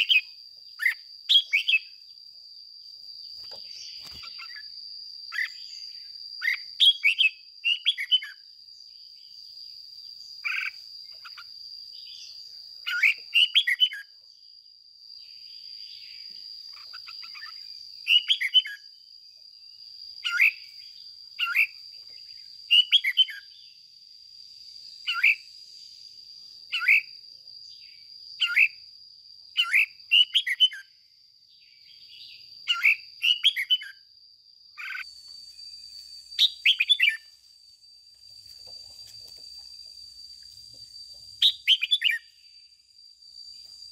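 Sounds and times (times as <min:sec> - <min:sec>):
bird singing warbling phrases: 0:00.0 - 0:02.0, 0:03.4 - 0:04.7, 0:05.3 - 0:08.4, 0:10.4 - 0:14.1, 0:15.9 - 0:18.9, 0:20.2 - 0:23.7, 0:25.1 - 0:25.4, 0:26.7 - 0:27.1, 0:28.4 - 0:28.8, 0:29.6 - 0:30.9, 0:31.7 - 0:34.0, 0:34.8 - 0:35.1, 0:36.4 - 0:37.3, 0:41.4 - 0:42.3.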